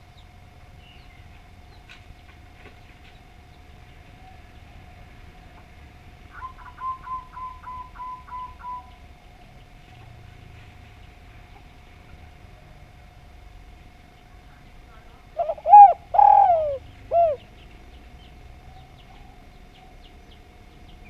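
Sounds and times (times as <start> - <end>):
bird calling short notes: 15.4 - 17.4.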